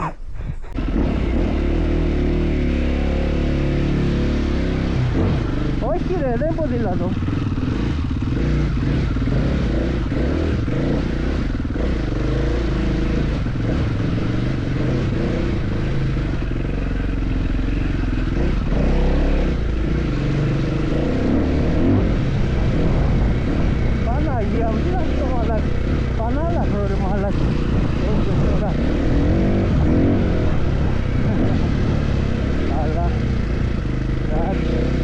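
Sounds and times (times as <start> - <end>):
motorcycle engine revving off-road: 0.7 - 35.0.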